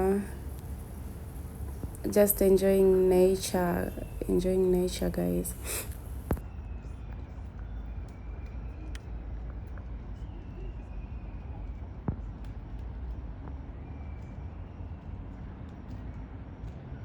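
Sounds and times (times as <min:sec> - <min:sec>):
faint thin high calls: 0:00.0 - 0:06.4
low rumble of background noise: 0:00.0 - 0:17.0.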